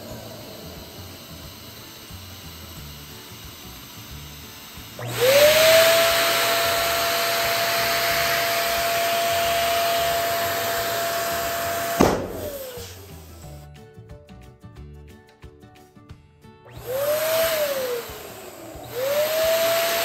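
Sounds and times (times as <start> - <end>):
electric balloon pump whining: 0.0 - 13.6, 16.6 - 20.0
pump switching off with a snap: 2.6 - 13.4.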